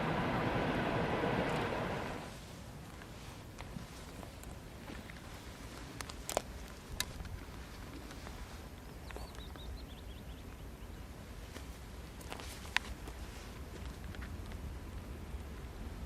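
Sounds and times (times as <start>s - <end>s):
low steady rumble: 0.0s - 3.9s
small bird chirping: 8.9s - 11.1s.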